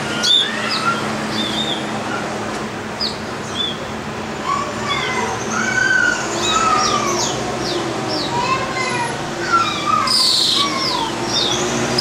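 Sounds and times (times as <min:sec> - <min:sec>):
birds chirping and whistling: 0:00.0 - 0:02.3, 0:03.0 - 0:03.9, 0:04.5 - 0:08.5, 0:09.4 - 0:12.0
steady background hum: 0:00.0 - 0:12.0.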